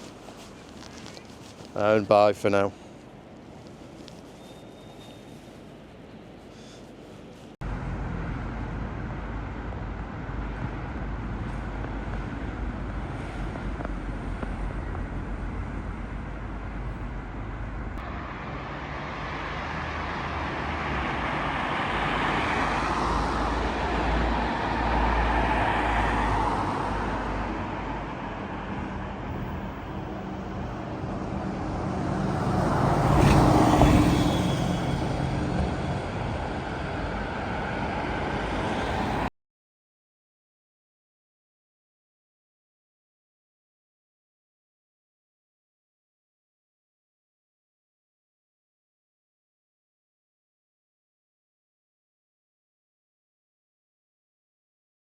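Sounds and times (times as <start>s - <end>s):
traffic engine rumble: 0.0s - 39.3s
vehicles passing: 0.0s - 39.3s.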